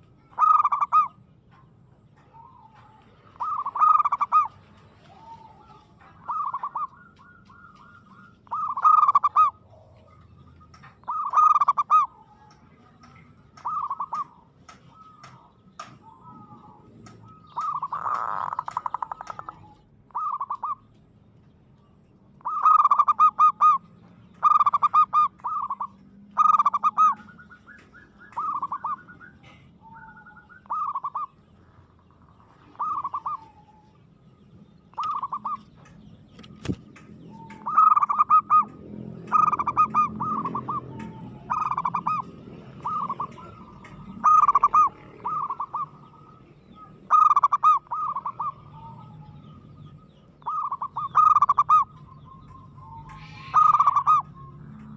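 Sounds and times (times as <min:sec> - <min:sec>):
dove cooing: 0:00.0 - 0:01.3, 0:02.2 - 0:20.9, 0:22.4 - 0:34.2, 0:34.9 - 0:54.9.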